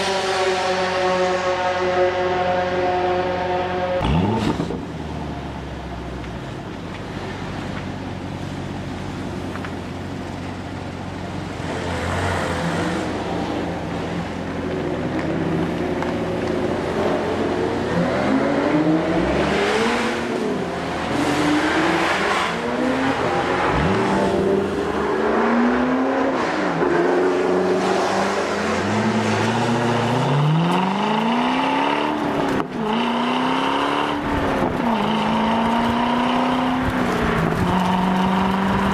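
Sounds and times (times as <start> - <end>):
car engine revving: 0.0 - 5.6, 11.4 - 38.9.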